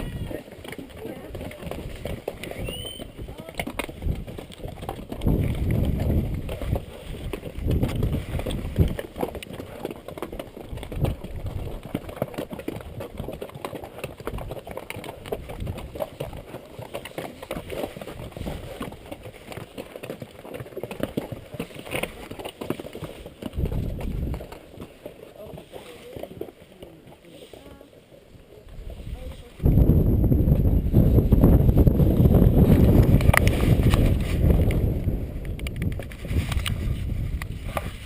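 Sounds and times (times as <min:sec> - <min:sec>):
mule hooves clopping: 0:00.0 - 0:38.0
wind buffeting microphone: 0:01.1 - 0:09.2, 0:23.5 - 0:24.6, 0:28.7 - 0:38.0.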